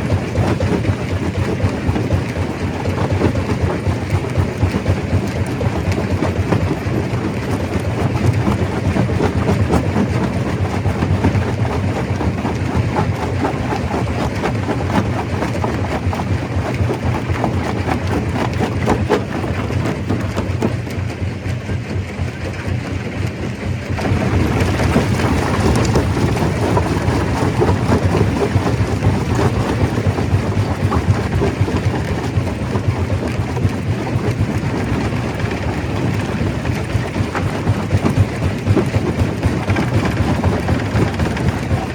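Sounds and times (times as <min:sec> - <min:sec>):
stone crusher rumbling: 0:24.0 - 0:41.9.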